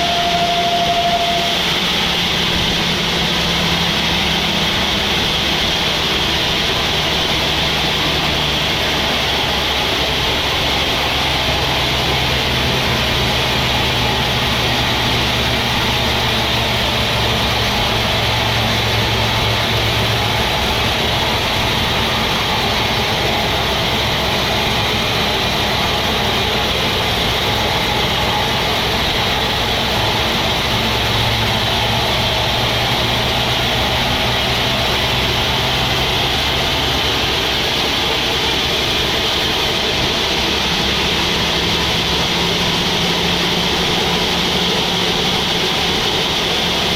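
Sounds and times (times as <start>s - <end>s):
sawmill machinery running: 0.0s - 46.9s.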